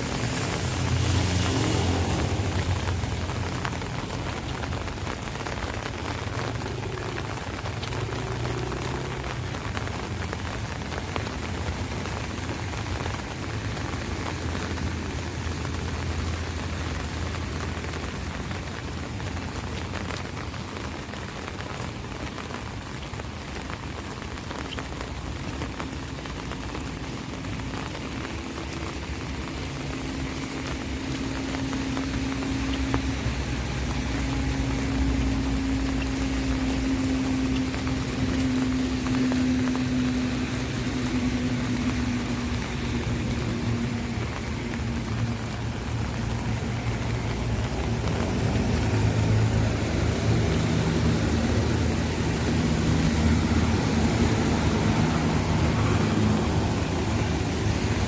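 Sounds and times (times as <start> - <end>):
rain on an umbrella: 0.0 - 58.0.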